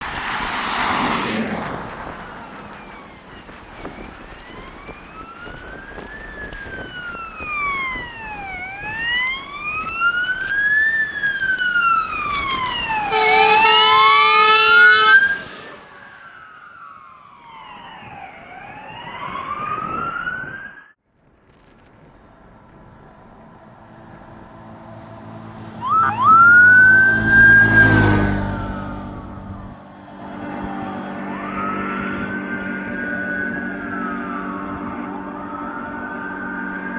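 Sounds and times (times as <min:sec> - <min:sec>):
fire engine siren wailing: 0:00.2 - 0:21.0, 0:24.3 - 0:36.9
lower wailing siren: 0:00.4 - 0:21.0, 0:23.7 - 0:36.9
loud horn blast: 0:12.9 - 0:16.1.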